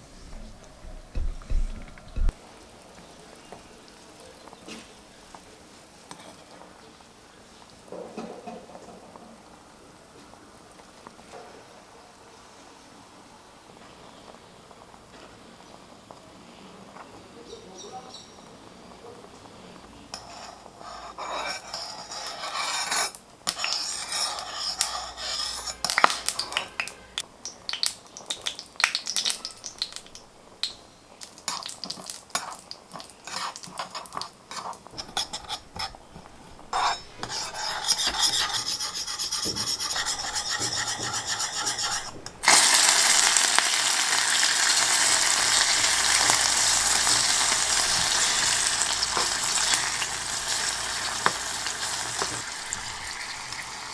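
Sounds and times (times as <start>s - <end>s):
utensils scraping in a pan: 20.1s - 26.6s, 31.5s - 53.9s
food sizzling in hot oil: 22.0s - 38.2s, 38.9s - 53.9s.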